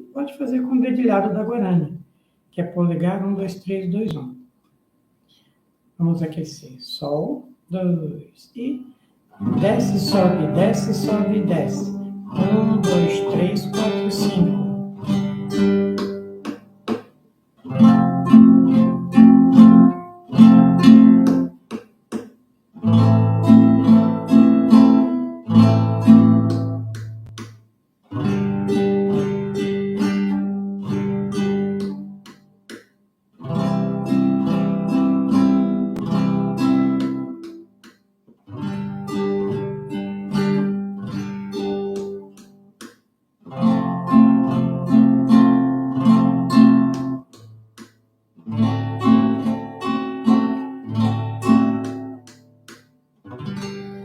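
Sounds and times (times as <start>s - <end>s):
acoustic guitar strumming: 9.3s - 32.4s, 33.4s - 37.7s, 38.4s - 42.6s, 43.4s - 54.0s.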